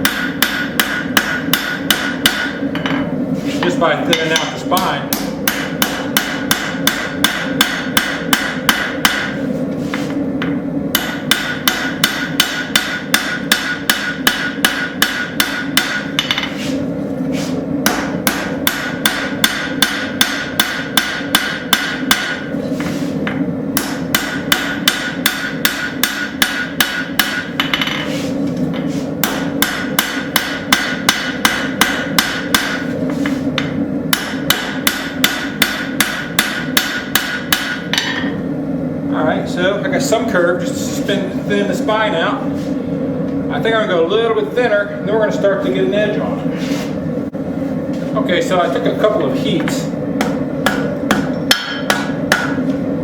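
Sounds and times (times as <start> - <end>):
hammer ringing on anvil: 0.0 - 3.0, 4.1 - 9.4, 11.0 - 16.5, 17.9 - 22.5, 23.8 - 27.8, 29.2 - 32.8, 33.6 - 38.4, 50.2 - 52.6.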